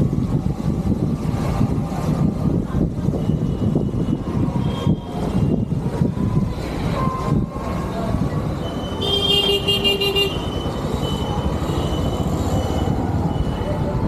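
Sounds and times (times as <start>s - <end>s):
wind buffeting microphone: 0.0s - 9.3s
vehicle horn: 9.0s - 11.3s.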